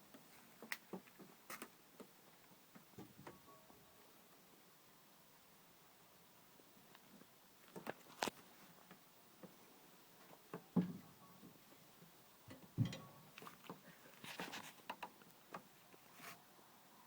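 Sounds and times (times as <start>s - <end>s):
faint metallic ring: 3.2s - 4.0s, 12.5s - 13.4s
heavy metal thuds: 12.8s - 13.2s
iron fireplace tools knocking: 12.8s - 13.2s.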